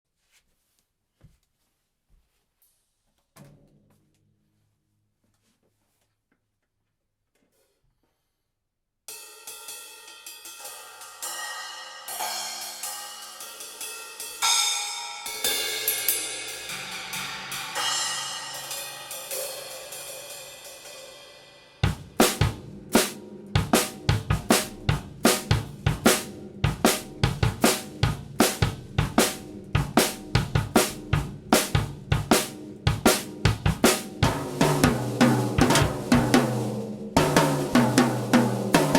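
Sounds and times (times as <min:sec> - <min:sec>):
cymbals crashing and ringing: 0:09.2 - 0:21.8
bass drum and snare beat: 0:21.8 - 0:38.9.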